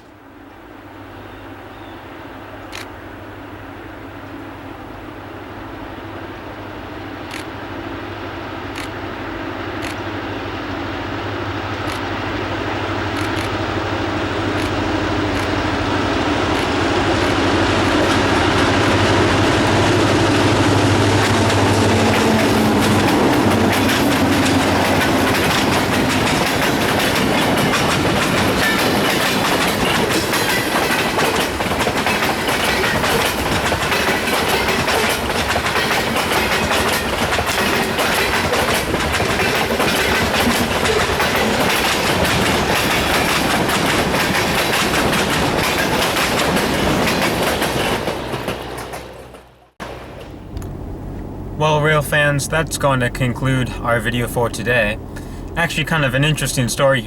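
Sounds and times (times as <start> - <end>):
diesel locomotive engine: 0.0 - 57.0
freight car wheels clattering: 14.5 - 51.6.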